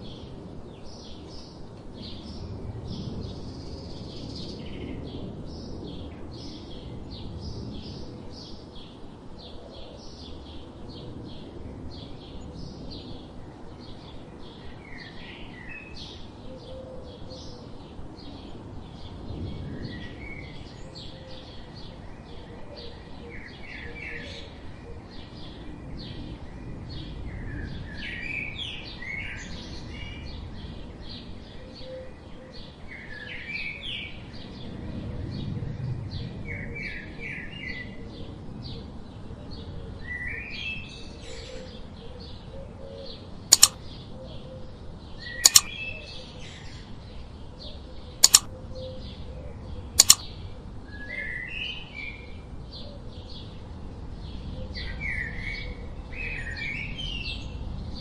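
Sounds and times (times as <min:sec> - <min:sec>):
sharp double clicks: 0:43.5 - 0:43.8, 0:45.4 - 0:45.7, 0:48.2 - 0:48.5, 0:50.0 - 0:50.2
birds chirping: 0:45.5 - 0:45.8.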